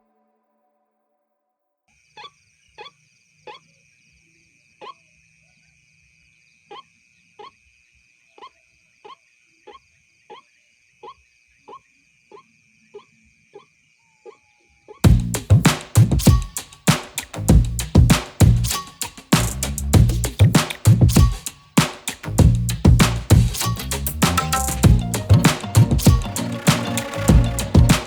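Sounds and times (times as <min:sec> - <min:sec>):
steady high-pitched drone: 0:23.6 - 0:28.0
waterhen calling: 0:24.7 - 0:28.0.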